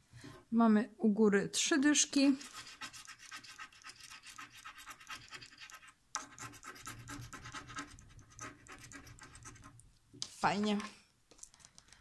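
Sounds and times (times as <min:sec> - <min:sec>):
scratch card being scraped: 0:02.4 - 0:09.8.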